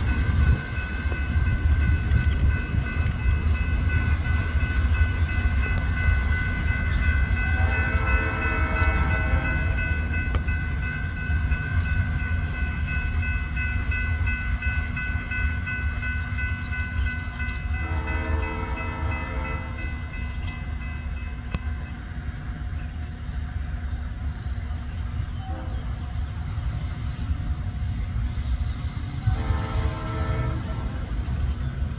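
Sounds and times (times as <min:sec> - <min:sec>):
train cars rolling rumble: 0:00.0 - 0:31.9
distant locomotive horn: 0:05.3 - 0:11.2, 0:17.5 - 0:20.8, 0:25.3 - 0:26.5, 0:29.0 - 0:31.6.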